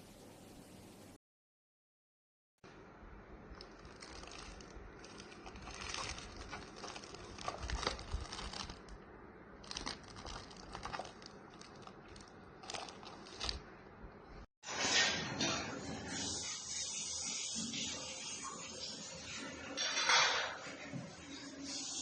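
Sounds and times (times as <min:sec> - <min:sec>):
packaging crinkling and rustling: 0:03.5 - 0:09.0, 0:09.6 - 0:13.7.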